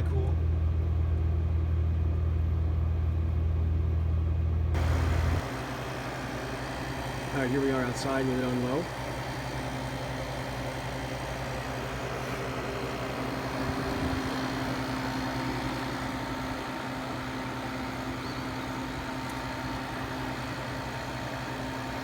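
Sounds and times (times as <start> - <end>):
air conditioner humming: 0.0 - 22.0.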